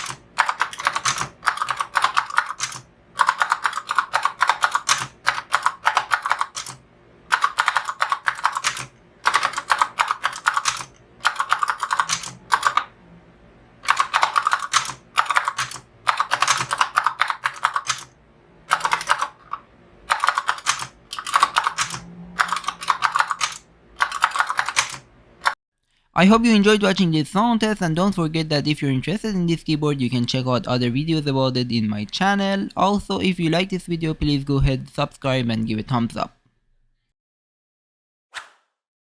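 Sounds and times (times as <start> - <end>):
mechanical keyboard typing: 0.0 - 13.0, 13.8 - 25.6.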